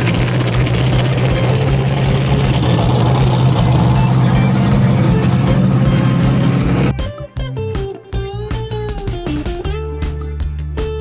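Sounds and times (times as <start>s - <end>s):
car engine running at low speed: 0.0s - 6.9s.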